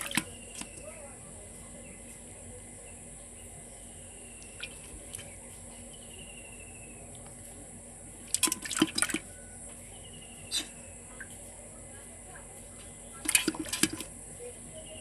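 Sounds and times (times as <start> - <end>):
water splashing: 0.0 - 1.0, 4.4 - 5.4, 8.2 - 9.4, 13.1 - 14.2
steady high-pitched hiss: 0.0 - 8.4, 9.2 - 13.3, 14.0 - 15.0.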